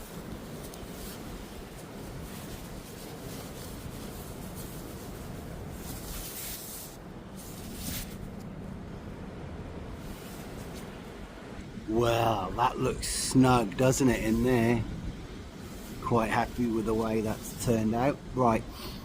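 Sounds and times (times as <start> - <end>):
rustling: 0.0 - 8.8, 9.9 - 11.4.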